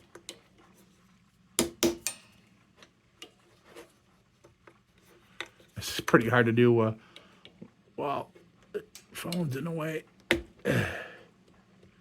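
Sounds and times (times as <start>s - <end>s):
faint metal clicks: 8.6s - 9.6s.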